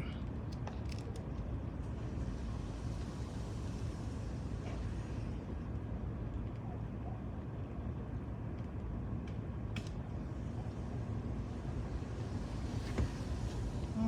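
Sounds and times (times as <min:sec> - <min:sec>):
vehicle engine and tyres rumbling: 0:00.2 - 0:14.0.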